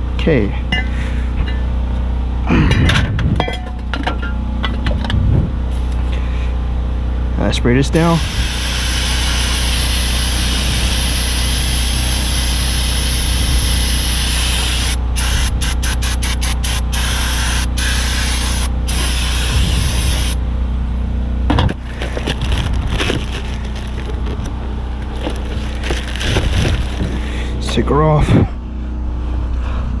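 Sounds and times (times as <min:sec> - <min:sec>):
aerosol spray hissing: 0:08.2 - 0:20.4
scraping and rubbing: 0:21.7 - 0:27.3.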